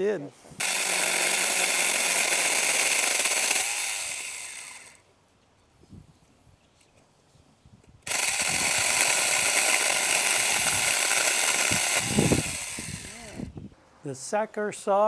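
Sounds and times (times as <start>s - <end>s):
electric chainsaw whine: 0.6s - 5.1s, 8.0s - 13.5s.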